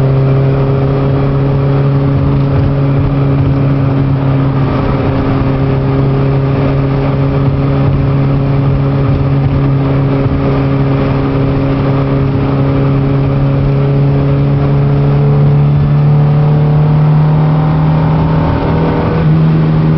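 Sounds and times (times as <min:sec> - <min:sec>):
car engine running: 0:00.0 - 0:19.9
road and tyre noise: 0:00.0 - 0:19.9.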